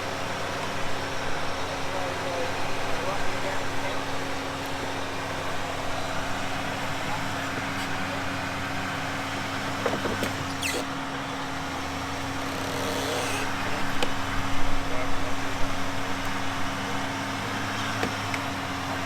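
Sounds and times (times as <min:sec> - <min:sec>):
car engine idling: 0:00.0 - 0:19.0
light knocks: 0:09.8 - 0:10.5.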